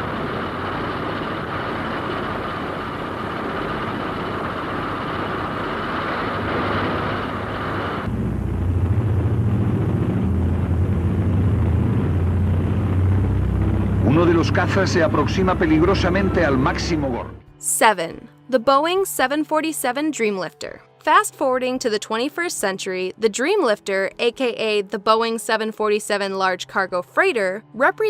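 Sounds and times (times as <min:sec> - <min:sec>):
aircraft engines droning: 0:00.0 - 0:18.2
deep pulsing rumble: 0:07.2 - 0:17.6.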